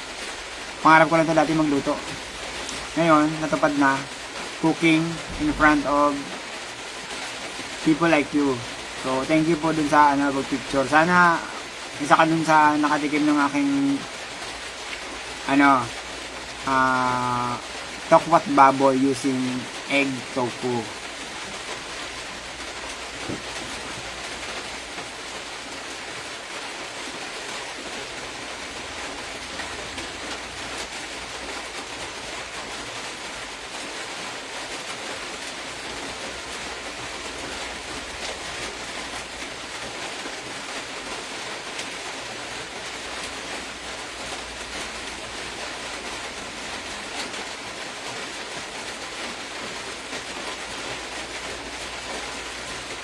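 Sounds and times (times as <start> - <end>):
steady hissing noise: 0.0 - 53.0.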